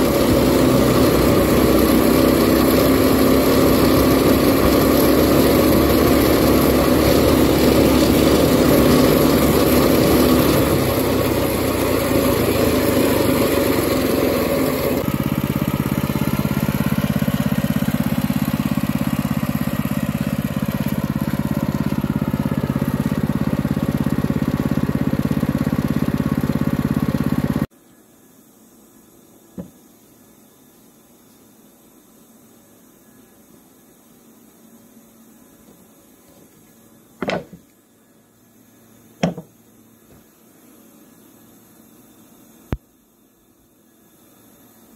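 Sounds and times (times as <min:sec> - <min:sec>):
small engine running at high revs: 0:00.0 - 0:27.7.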